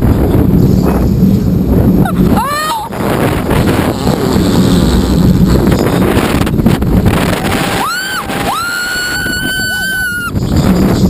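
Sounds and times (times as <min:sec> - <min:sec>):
roller coaster rumbling: 0:00.0 - 0:11.0
wind buffeting microphone: 0:00.0 - 0:11.0
rider screaming: 0:07.5 - 0:10.3.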